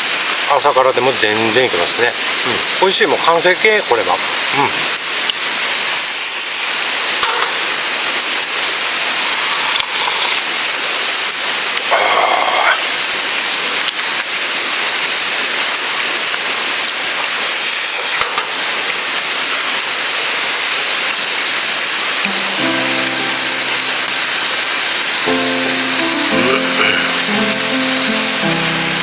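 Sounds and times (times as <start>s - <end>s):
river rushing: 22.2s - 29.0s.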